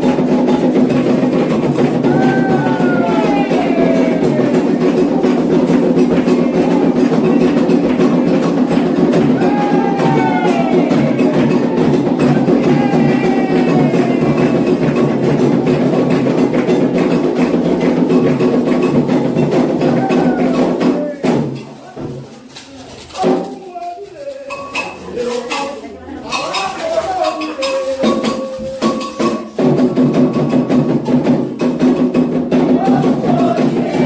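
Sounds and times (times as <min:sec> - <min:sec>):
hand drums playing: 0:00.0 - 0:21.8, 0:26.6 - 0:34.0
voices singing: 0:00.1 - 0:16.5, 0:32.5 - 0:34.0.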